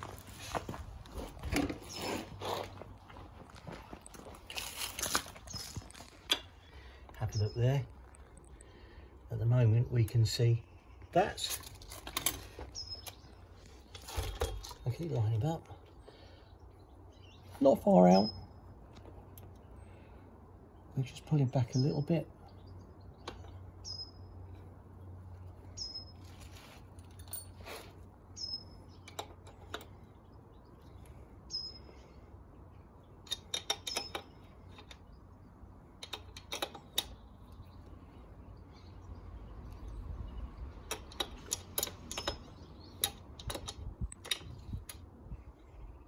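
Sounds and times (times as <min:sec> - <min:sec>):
small bird chirping: 0:12.4 - 0:13.9, 0:21.6 - 0:26.7, 0:28.3 - 0:32.3, 0:32.9 - 0:46.0.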